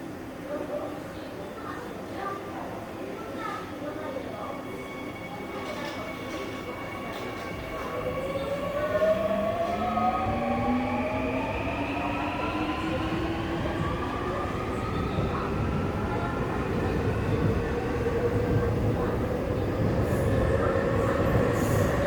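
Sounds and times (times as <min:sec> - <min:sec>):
train rumbling on track: 0:04.6 - 0:22.0.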